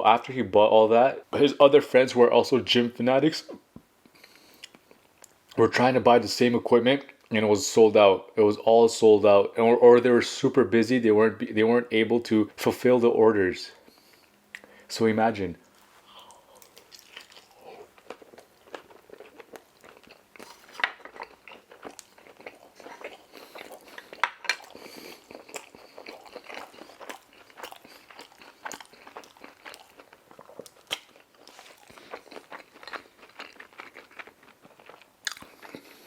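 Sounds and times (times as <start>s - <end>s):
chewing and crunching food: 3.5s - 5.6s, 15.6s - 36.0s.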